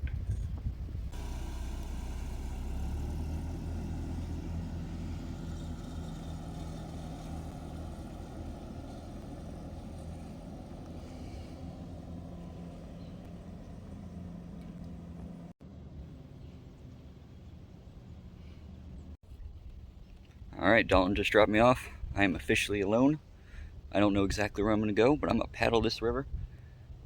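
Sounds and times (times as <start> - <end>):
engine humming: 0.7 - 19.2.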